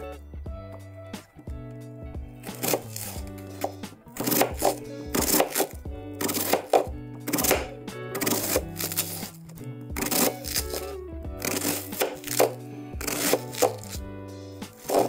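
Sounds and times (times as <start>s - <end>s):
background music: 0.0s - 15.0s
knife slicing onion on board: 2.4s - 9.4s, 10.0s - 14.0s, 14.6s - 15.0s.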